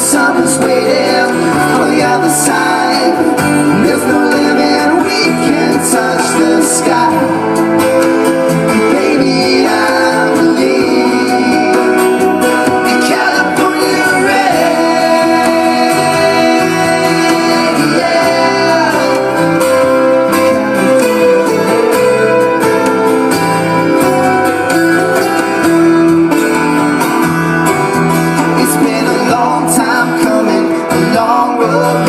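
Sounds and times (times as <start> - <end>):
person singing without words: 0.0 - 7.6, 8.6 - 20.3, 28.4 - 32.0
acoustic guitar strumming: 0.0 - 32.0.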